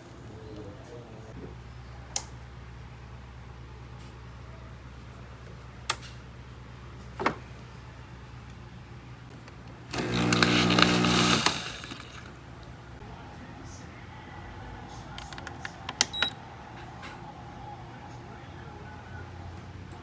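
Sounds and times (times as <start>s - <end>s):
kitchen appliance buzzing: 9.3s - 13.0s.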